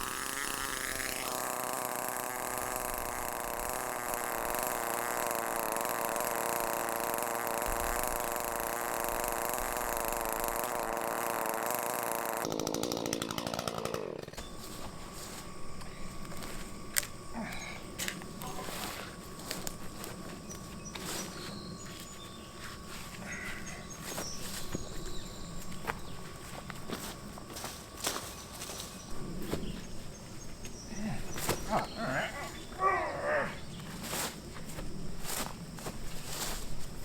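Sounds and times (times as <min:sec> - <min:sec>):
chainsaw cutting wood: 0:00.0 - 0:22.9, 0:23.8 - 0:29.1.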